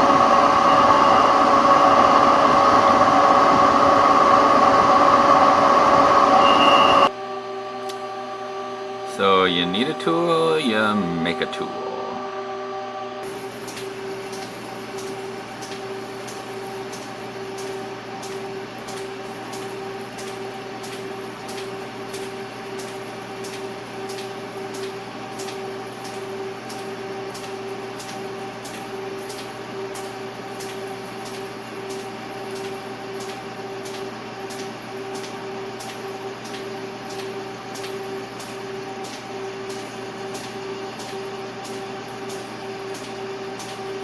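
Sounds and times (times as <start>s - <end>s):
machine tool humming: 0.0s - 21.2s.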